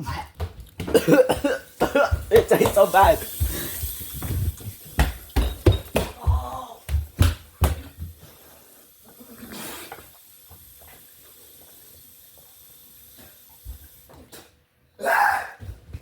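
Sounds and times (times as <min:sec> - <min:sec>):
dull thumps: 0:00.4 - 0:08.0
person breathing hard and hissing: 0:03.2 - 0:04.9.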